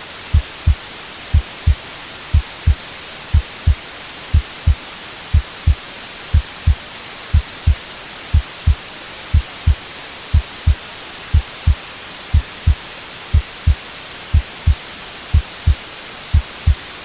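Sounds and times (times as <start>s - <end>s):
white noise hiss: 0.0s - 17.0s
heartbeat thumps: 0.3s - 16.9s.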